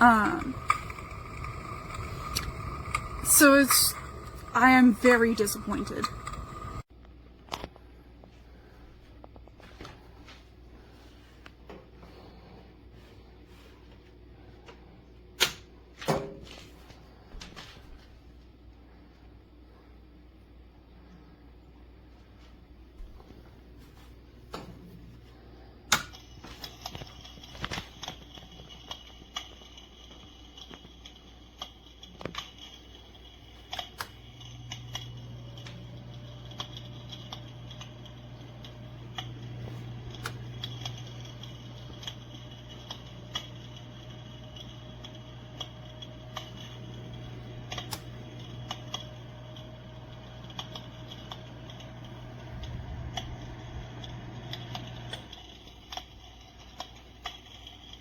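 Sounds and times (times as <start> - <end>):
heater fan humming: 0.0 - 6.9, 20.8 - 58.0
simulated fire crackling clicks: 0.0 - 7.7, 25.9 - 58.0.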